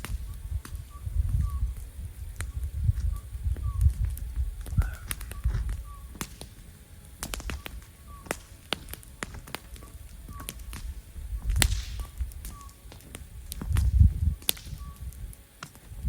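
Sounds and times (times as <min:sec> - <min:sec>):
campfire crackling and popping: 0:00.0 - 0:16.0
low rumbling bursts: 0:00.0 - 0:16.0.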